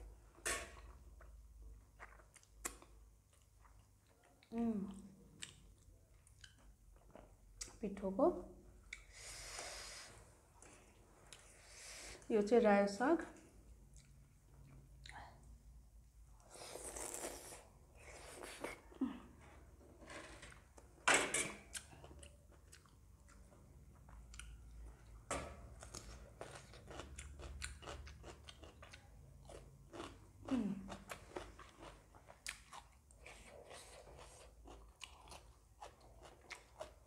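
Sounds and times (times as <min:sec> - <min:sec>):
person chewing with wet crunches: 0:00.8 - 0:07.8, 0:13.8 - 0:15.6, 0:21.7 - 0:37.0.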